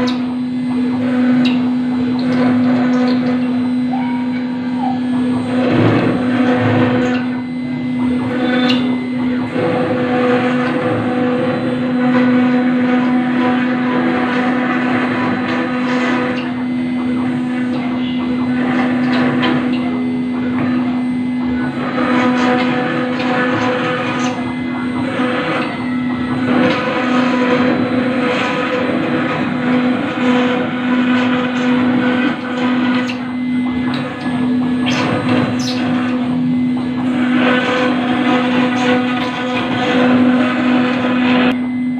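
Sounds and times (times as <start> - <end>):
cnc router spindle whining: 0.0 - 41.9.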